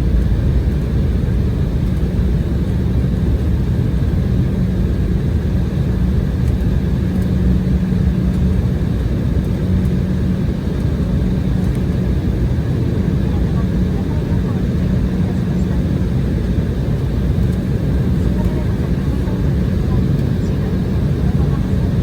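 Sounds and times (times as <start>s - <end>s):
aircraft cabin engine rumble: 0.0s - 22.0s.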